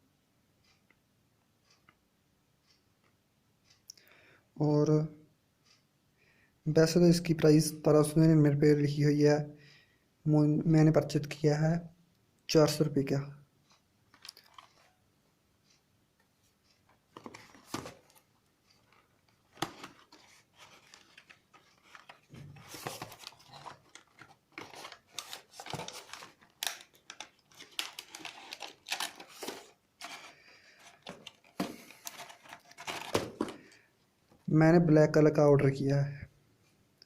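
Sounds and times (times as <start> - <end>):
packaging rustling and crinkling: 14.1 - 15.0, 17.1 - 33.8.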